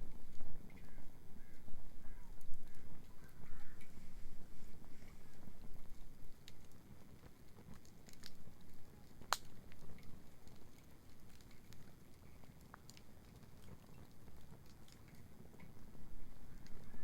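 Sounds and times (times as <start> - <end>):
bonfire crackling and popping: 0.0 - 17.0
fire rumbling: 0.0 - 17.0.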